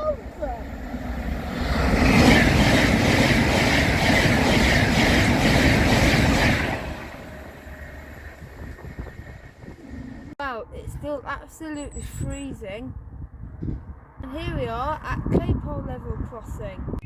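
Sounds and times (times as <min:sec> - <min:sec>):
train passing at speed: 0:00.0 - 0:10.7
faint rumble: 0:06.9 - 0:10.8.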